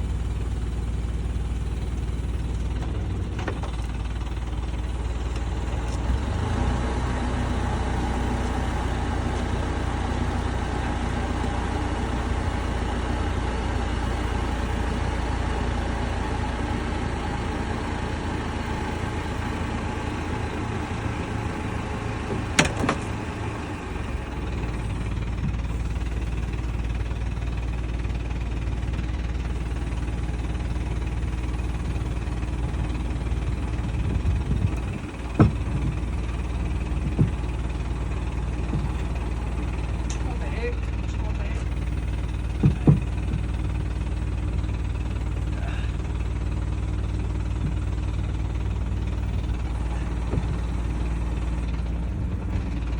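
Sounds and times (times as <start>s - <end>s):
engine idling: 0.0s - 52.9s.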